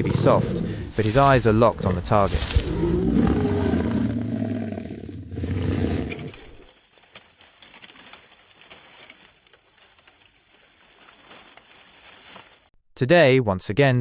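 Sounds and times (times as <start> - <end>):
low lion roar: 0.0 - 6.6.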